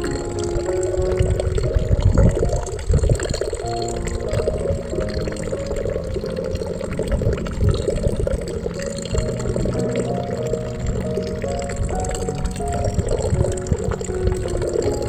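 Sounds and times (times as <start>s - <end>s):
soft music with held notes: 0.0s - 15.0s
water flowing: 0.0s - 15.0s.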